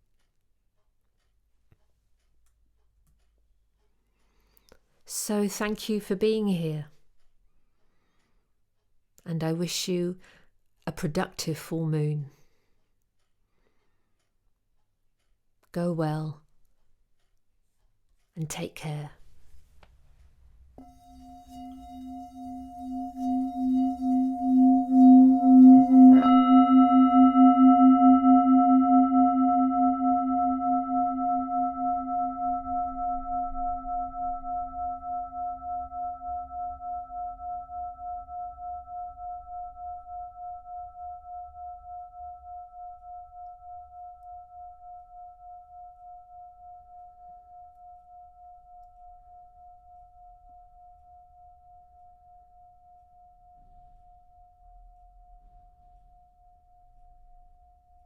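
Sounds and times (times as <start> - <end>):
singing bowl struck: 20.8 - 48.3
singing bowl humming: 20.8 - 57.0.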